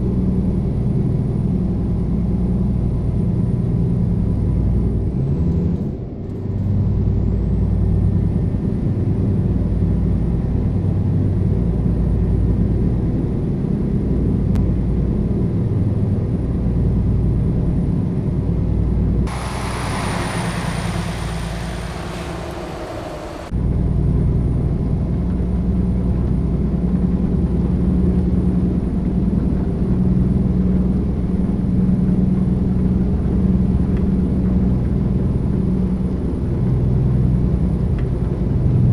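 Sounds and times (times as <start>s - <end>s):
hissing: 19.3s - 23.5s
truck diesel engine droning: 19.3s - 23.6s.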